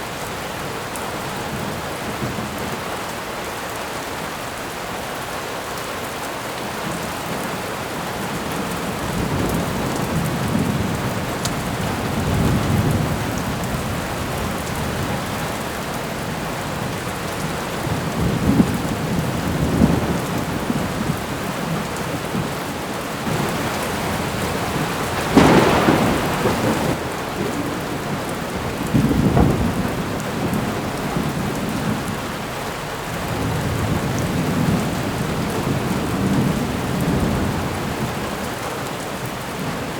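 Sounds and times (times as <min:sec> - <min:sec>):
steady rain: 0:00.0 - 0:39.9
thunder rumbling: 0:08.5 - 0:38.2.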